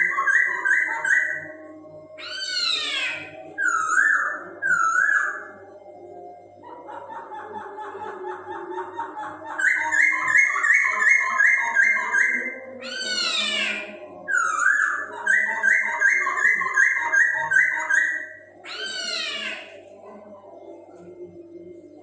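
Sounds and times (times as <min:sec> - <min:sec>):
bird singing whistled notes: 0:02.2 - 0:05.6.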